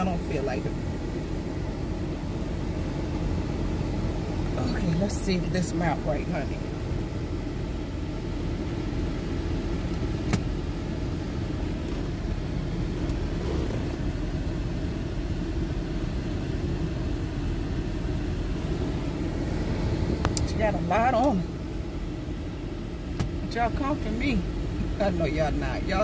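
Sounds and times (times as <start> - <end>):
air-conditioning blower: 0.0 - 26.0.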